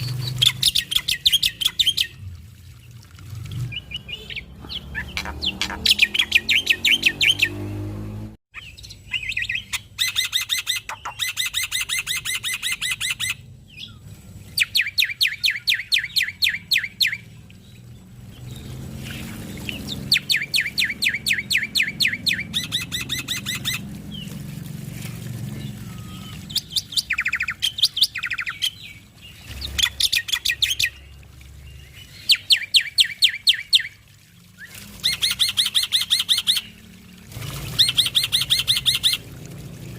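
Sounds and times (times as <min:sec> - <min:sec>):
bird singing fast notes: 0:03.6 - 0:07.8, 0:18.4 - 0:24.3, 0:25.5 - 0:34.0, 0:37.7 - 0:39.3.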